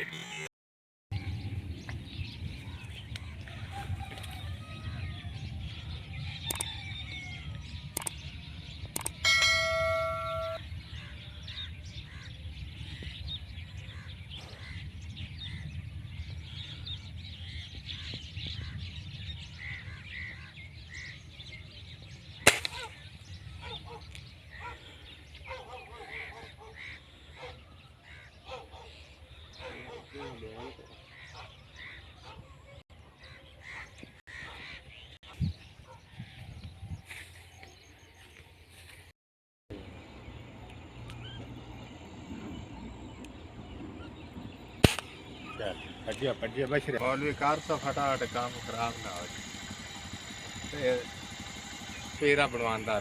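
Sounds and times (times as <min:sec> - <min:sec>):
birds calling: 0:01.2 - 0:38.9, 0:39.7 - 0:53.0
loud ringing tone: 0:09.0 - 0:10.6
sharp crack: 0:22.4 - 0:22.9, 0:44.8 - 0:45.4
low steady outdoor rumble: 0:39.7 - 0:53.0.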